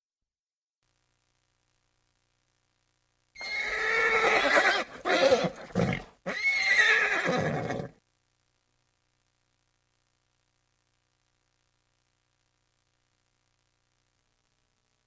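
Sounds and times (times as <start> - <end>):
horse neighing: 3.4 - 8.0.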